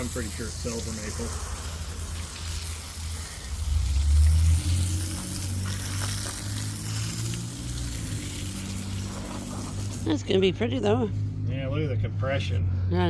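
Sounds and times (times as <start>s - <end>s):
steady hiss: 0.0s - 10.2s
engine rumbling and revving: 0.0s - 13.0s.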